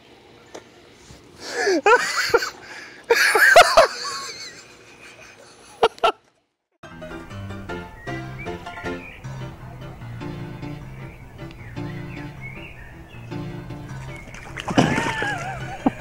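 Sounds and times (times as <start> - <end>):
music: 6.8 - 16.0.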